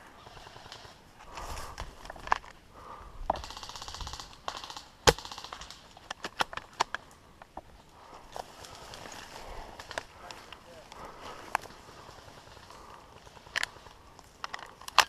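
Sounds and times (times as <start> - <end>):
airsoft guns firing: 3.4 - 6.0.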